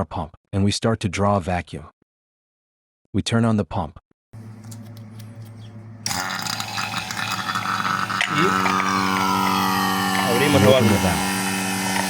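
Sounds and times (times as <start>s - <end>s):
low electric hum: 4.4s - 12.0s
vacuum pump running: 4.4s - 12.0s.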